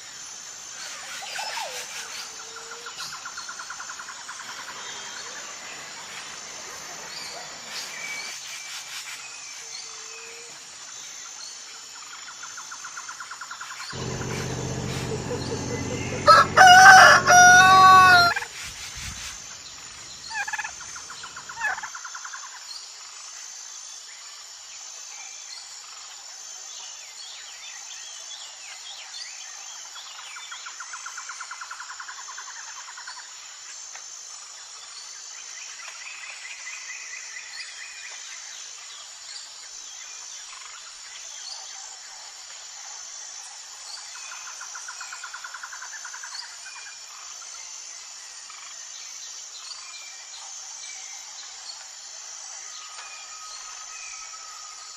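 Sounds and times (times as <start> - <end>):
steady high background tone: 14.0 - 18.3
low hum: 14.0 - 18.4
rooster crowing: 14.0 - 18.5.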